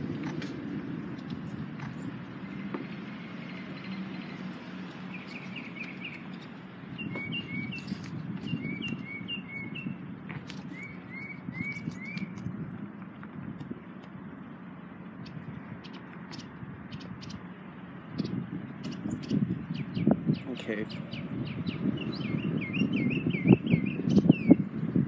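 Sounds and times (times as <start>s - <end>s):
steady low rumble: 0.0s - 25.0s
songbird chirping: 1.4s - 12.5s, 14.0s - 24.6s.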